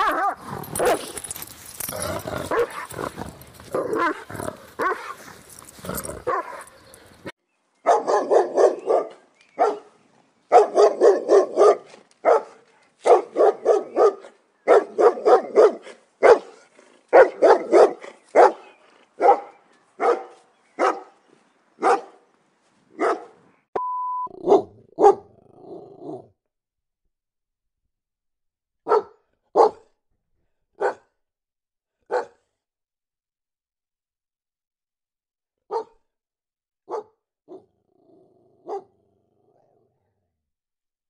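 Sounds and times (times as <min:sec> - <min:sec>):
dog barking: 0:00.0 - 0:01.1, 0:02.5 - 0:02.9, 0:03.7 - 0:05.2, 0:06.2 - 0:07.0, 0:07.8 - 0:21.2, 0:21.8 - 0:22.2, 0:23.0 - 0:23.4, 0:24.4 - 0:25.3, 0:28.8 - 0:29.9, 0:30.8 - 0:31.1, 0:32.0 - 0:32.5, 0:35.7 - 0:36.0, 0:36.9 - 0:37.7, 0:38.6 - 0:39.0
short steady beep: 0:23.8 - 0:24.3.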